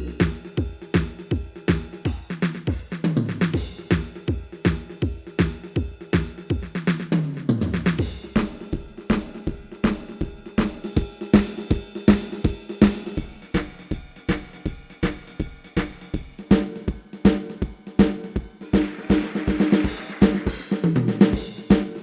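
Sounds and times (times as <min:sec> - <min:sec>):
sampled drum groove: 0:00.0 - 0:22.0
cymbal wash: 0:18.6 - 0:22.0
drum fill falling in pitch: 0:18.6 - 0:22.0.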